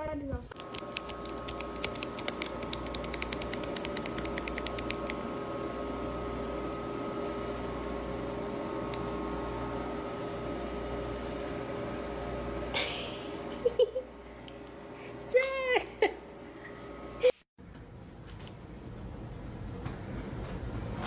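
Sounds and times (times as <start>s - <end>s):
steady mechanical hum: 0.0s - 21.0s
rapid light clicks: 0.6s - 5.2s.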